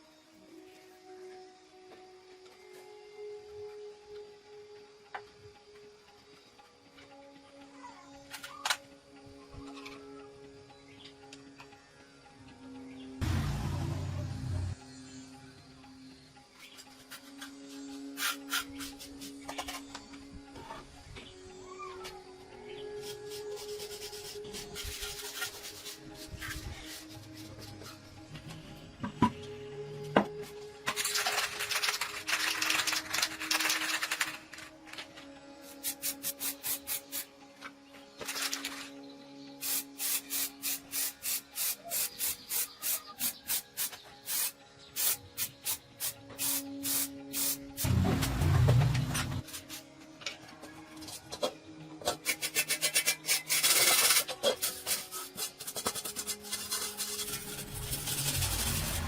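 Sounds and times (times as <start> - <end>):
quiet background music: 0.0 - 59.0
rasping scraping strokes: 52.1 - 59.0.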